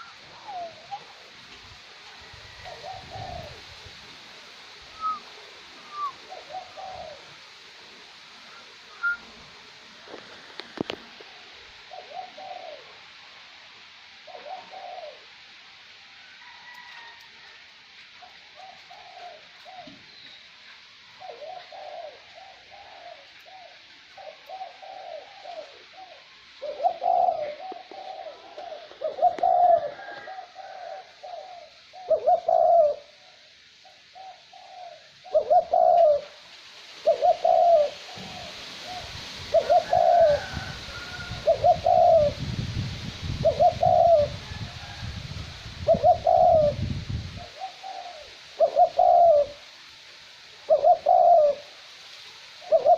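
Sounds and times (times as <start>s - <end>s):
dove cooing: 0.0s - 15.8s, 18.1s - 20.2s, 21.1s - 36.4s, 37.0s - 49.8s, 50.4s - 51.8s, 52.5s - 52.9s
light wind hiss: 0.0s - 52.9s
wind rumble on microphone: 39.1s - 47.6s.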